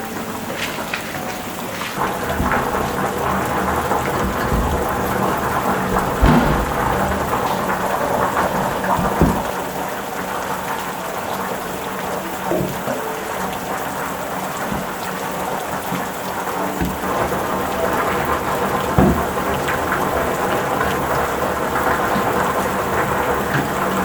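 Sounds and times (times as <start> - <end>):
heavy rain falling: 0.0 - 24.0
sharp knocks: 2.0 - 9.6
thunder rumble: 2.0 - 10.6.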